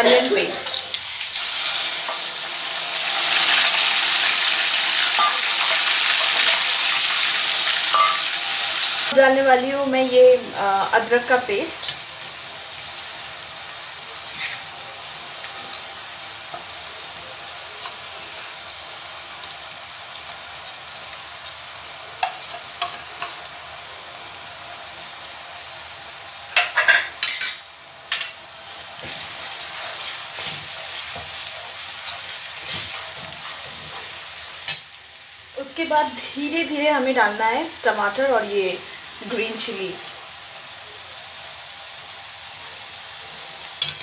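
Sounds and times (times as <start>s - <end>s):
paste sizzling in a pan: 0.0s - 44.0s
spatula scraping pan: 29.0s - 34.3s.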